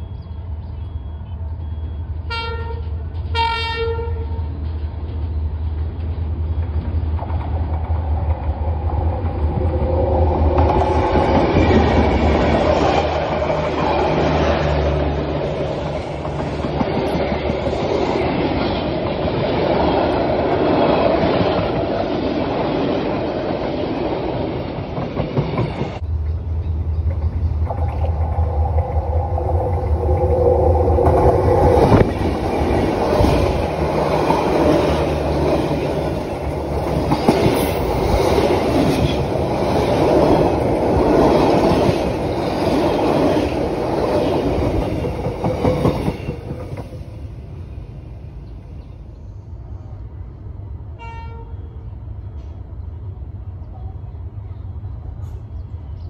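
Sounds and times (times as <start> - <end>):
train wheels clattering over rails: 15.7 - 20.2, 24.9 - 47.1.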